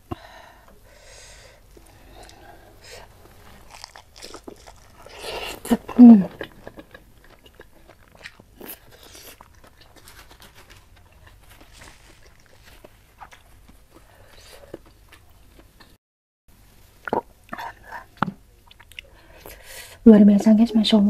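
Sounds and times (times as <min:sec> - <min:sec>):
wet chewing sounds: 0:01.7 - 0:16.0, 0:17.0 - 0:19.6.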